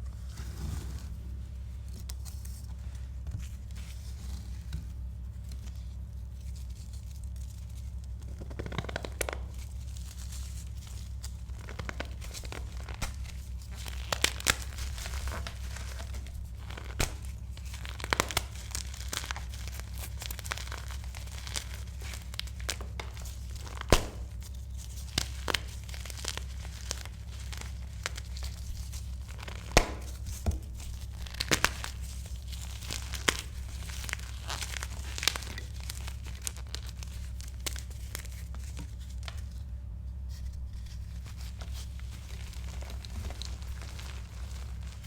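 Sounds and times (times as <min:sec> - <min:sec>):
steady low hum: 0:00.0 - 0:45.0
chalk blocks being crushed: 0:16.8 - 0:24.4, 0:29.4 - 0:36.0.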